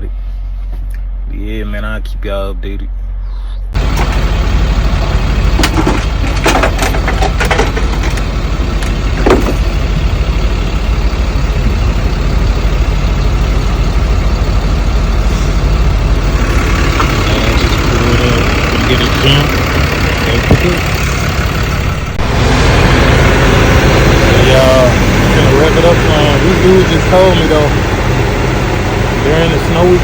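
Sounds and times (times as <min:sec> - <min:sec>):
truck engine idling: 0:03.7 - 0:30.0
knocks and clanks: 0:05.0 - 0:10.1, 0:20.1 - 0:21.2.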